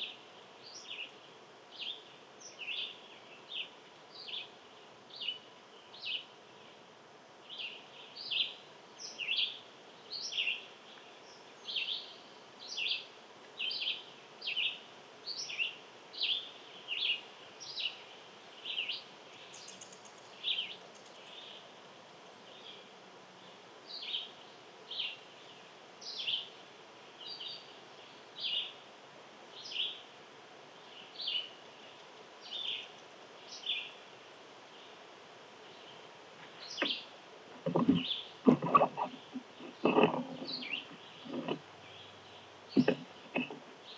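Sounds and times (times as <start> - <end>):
outdoor background noise: 0.0 - 43.9
small animal chirping: 36.8 - 41.6.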